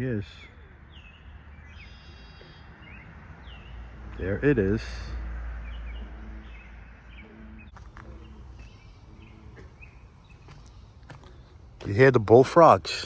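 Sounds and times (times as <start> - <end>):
small birds chirping: 0.0 - 12.8
bullfrogs croaking: 0.6 - 4.2, 5.1 - 11.7.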